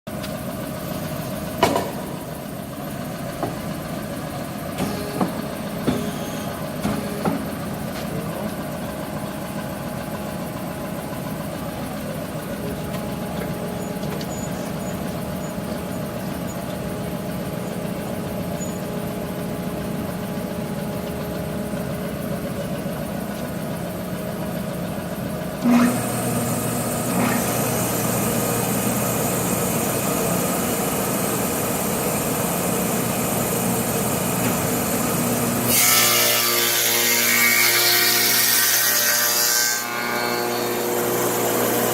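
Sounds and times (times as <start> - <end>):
electric motors humming: 0.2 - 41.9
sharp knocks: 1.6 - 2.2, 4.7 - 6.2, 6.8 - 8.1.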